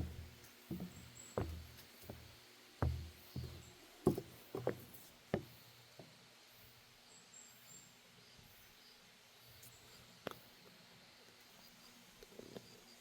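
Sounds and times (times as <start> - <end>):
footsteps on wooden deck: 0.0 - 6.1.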